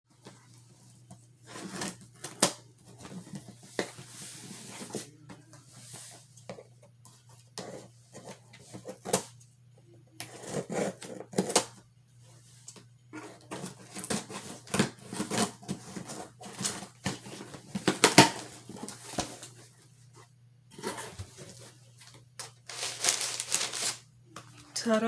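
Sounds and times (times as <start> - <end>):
faint low hum: 0.1 - 25.0
package rustling: 20.9 - 24.1.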